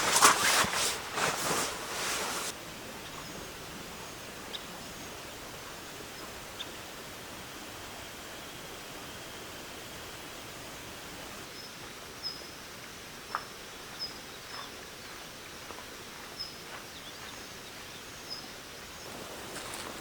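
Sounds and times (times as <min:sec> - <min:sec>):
light rain: 0:00.0 - 0:17.2, 0:17.8 - 0:20.0
wind: 0:00.0 - 0:20.0
bird chirping: 0:03.0 - 0:12.6.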